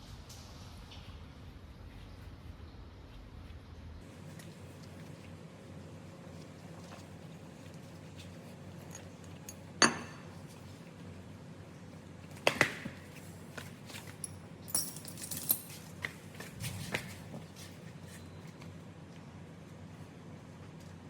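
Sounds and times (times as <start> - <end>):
metal tools clinking: 14.0 - 16.0.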